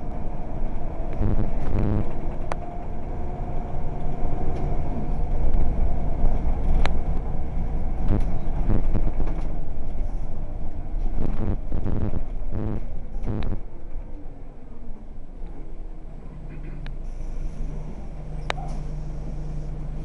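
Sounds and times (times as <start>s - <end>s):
bus engine drone: 0.0s - 20.0s
faint whine: 1.1s - 2.2s, 8.0s - 9.4s, 11.1s - 15.6s.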